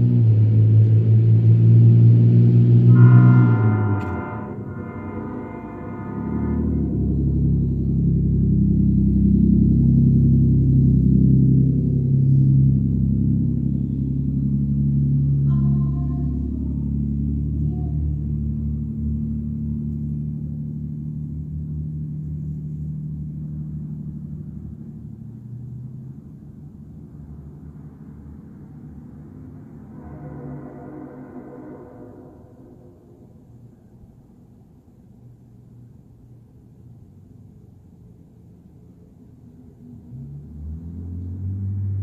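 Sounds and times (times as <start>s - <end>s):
truck exhaust drone: 0.0s - 42.0s
brief higher tone: 2.9s - 7.6s, 29.8s - 33.6s.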